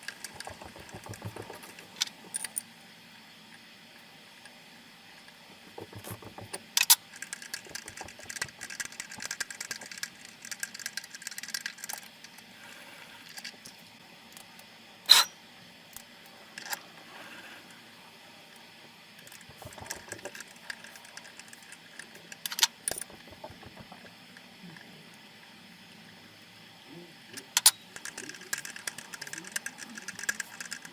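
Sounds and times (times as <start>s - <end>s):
faint steady hum: 0.0s - 30.9s
sharp clicks: 5.7s - 12.0s.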